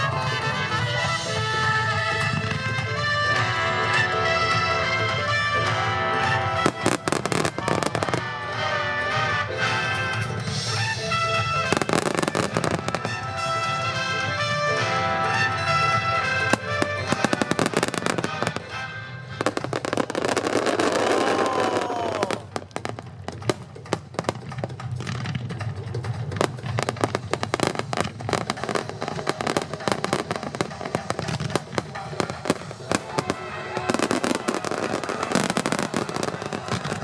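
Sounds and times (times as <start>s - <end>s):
fireworks bursting and crackling: 0.0s - 37.0s
music: 0.0s - 37.0s
firework whistling hiss: 27.4s - 37.0s.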